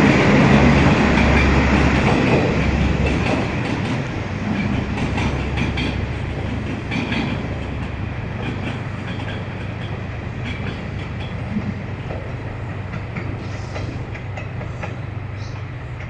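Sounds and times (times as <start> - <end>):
train running on track: 0.0 - 16.0
train wheel clicks: 0.8 - 16.0.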